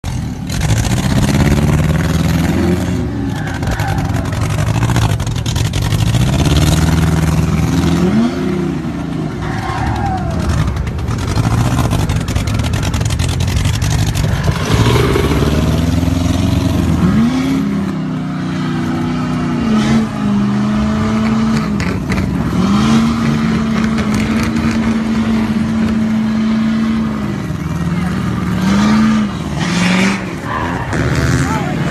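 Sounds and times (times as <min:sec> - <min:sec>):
car engine revving hard: 0:10.4 - 0:17.9, 0:19.5 - 0:31.9.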